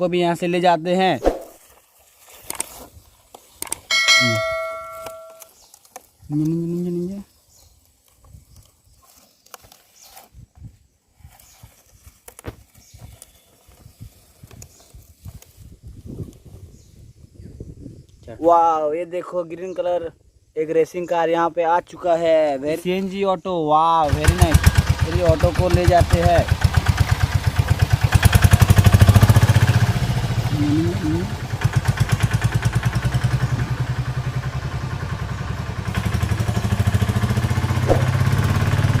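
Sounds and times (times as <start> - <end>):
rustling: 1.3 - 16.3
small engine pulsing: 24.1 - 39.0
soft thuds: 37.9 - 38.2.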